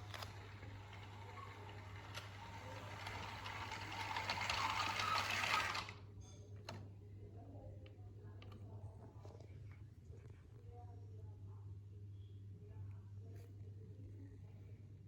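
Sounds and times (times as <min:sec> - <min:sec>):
toy train motor whirring: 0:00.0 - 0:06.0.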